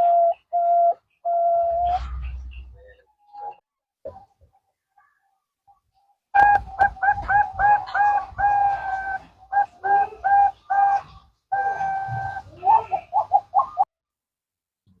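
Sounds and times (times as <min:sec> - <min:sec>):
dove cooing: 0:00.0 - 0:03.6, 0:06.4 - 0:13.9.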